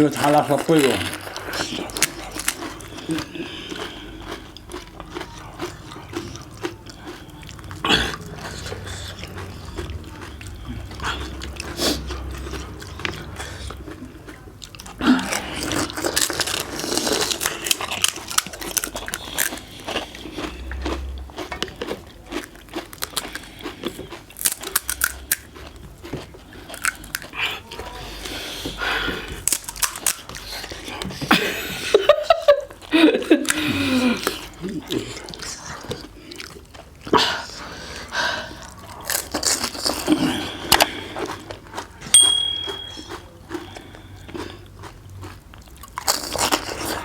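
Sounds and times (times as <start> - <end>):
crisp shells crunching when bitten: 22.2 - 25.7, 29.4 - 30.4.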